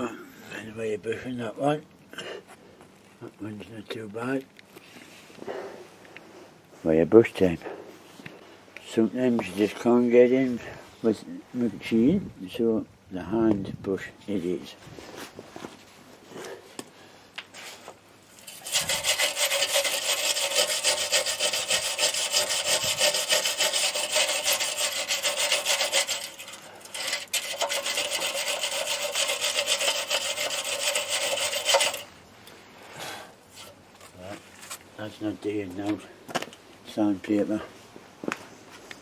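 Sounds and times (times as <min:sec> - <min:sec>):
wire brush scraping metal: 0:18.3 - 0:32.1.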